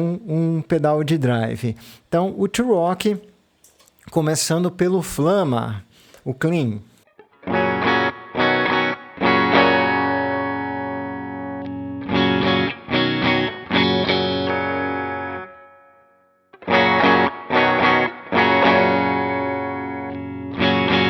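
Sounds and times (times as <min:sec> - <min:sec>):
electric guitar chords: 0:07.1 - 0:21.0.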